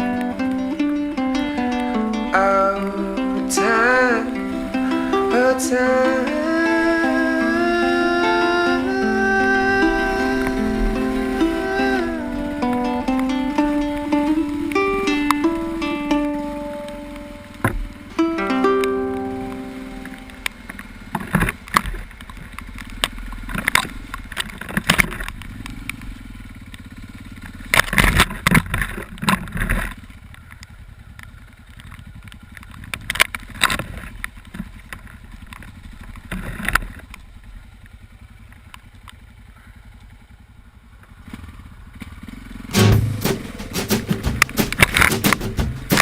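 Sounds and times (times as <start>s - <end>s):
motorcycle riding: 0.0s - 46.0s
clattering and knocking: 42.8s - 46.0s.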